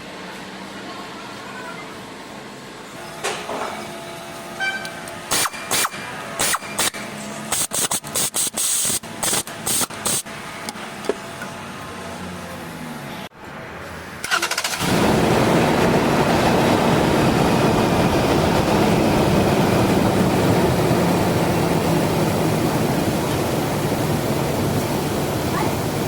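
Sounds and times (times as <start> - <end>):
starter motor cranking: 14.2 - 15.2.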